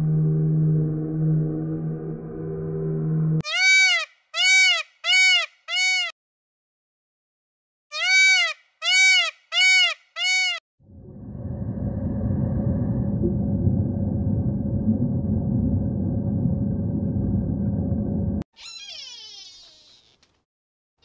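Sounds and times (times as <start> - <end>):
peacock calling: 7.9 - 10.6.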